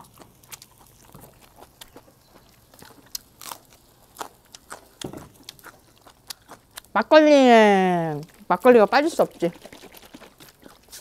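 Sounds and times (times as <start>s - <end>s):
person chewing: 0.0s - 7.0s, 9.2s - 11.0s.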